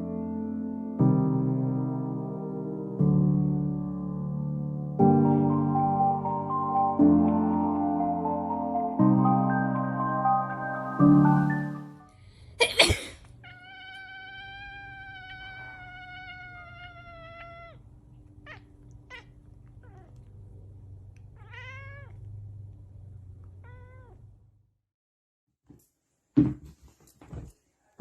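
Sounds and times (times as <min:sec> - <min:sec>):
cat meowing: 0:13.3 - 0:20.3, 0:21.3 - 0:22.2, 0:23.6 - 0:24.3.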